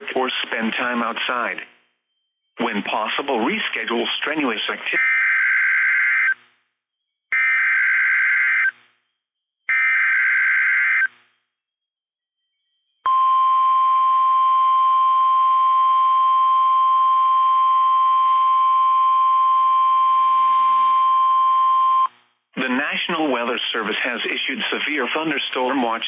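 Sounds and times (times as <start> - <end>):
steady warning alarm tone: 4.9 - 6.4.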